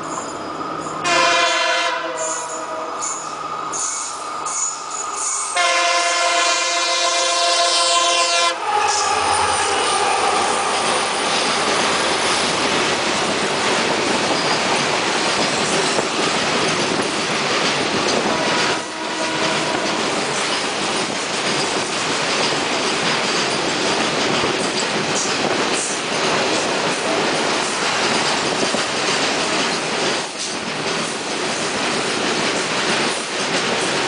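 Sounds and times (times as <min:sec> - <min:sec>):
locomotive horn: 0:01.0 - 0:03.1, 0:05.5 - 0:11.1, 0:18.2 - 0:20.1.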